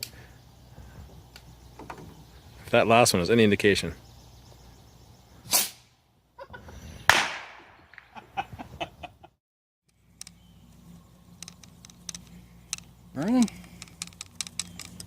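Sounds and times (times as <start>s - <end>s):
chicken clucking: 6.4s - 6.8s
sharp ringing crack: 7.1s - 8.1s.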